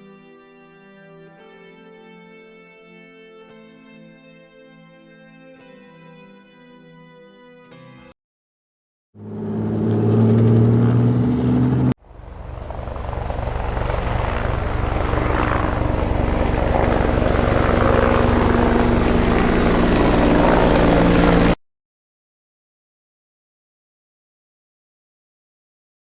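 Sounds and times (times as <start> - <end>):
steady low tones: 9.2 - 21.4
helicopter rotor blades chopping: 9.2 - 21.6
turbine whine: 9.2 - 21.6.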